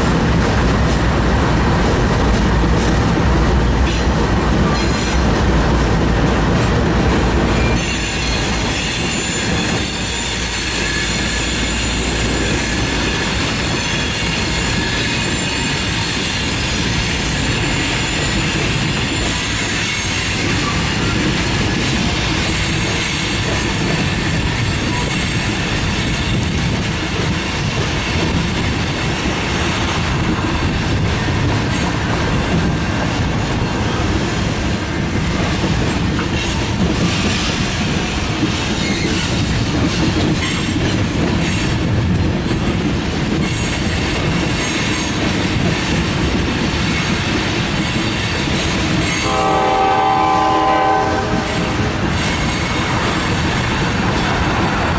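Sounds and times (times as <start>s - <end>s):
train horn: 49.1s - 52.2s.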